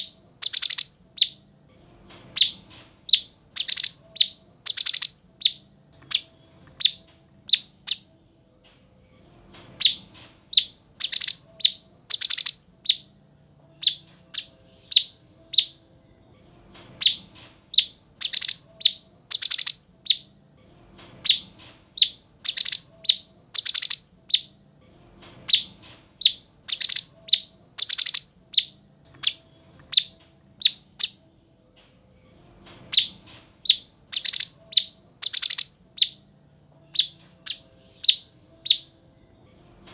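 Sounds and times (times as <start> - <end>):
bird singing high notes: 0.4 - 1.4, 3.2 - 5.1, 10.6 - 13.0, 17.8 - 19.8, 22.0 - 24.0, 26.7 - 28.3, 33.7 - 36.2.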